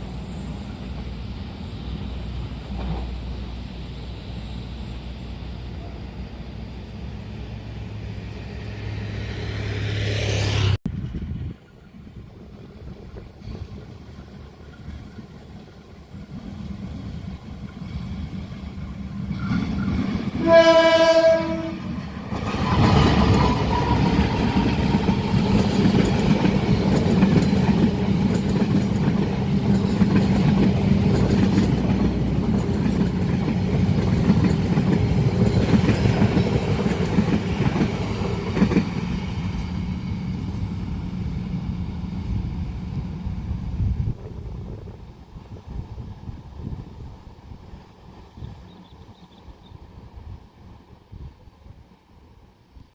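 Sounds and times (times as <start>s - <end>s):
train rumbling over rails: 0.0s - 52.9s
train horn blast: 20.3s - 22.0s.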